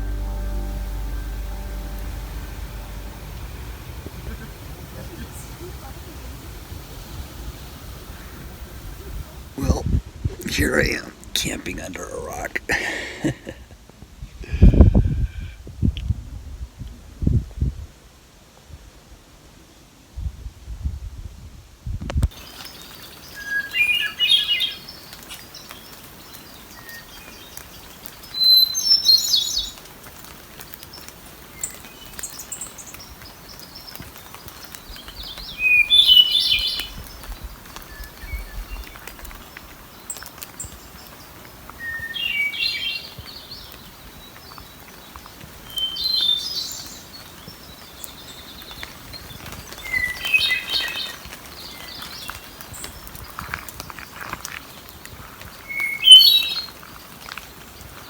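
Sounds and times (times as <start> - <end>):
thrush singing: 0.0 - 8.6.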